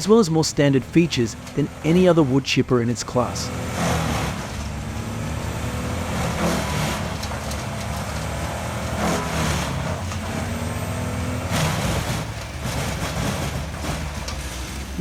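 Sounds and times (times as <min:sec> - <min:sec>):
wood chipper engine running: 0:00.0 - 0:15.0
wood being chipped: 0:03.6 - 0:14.9.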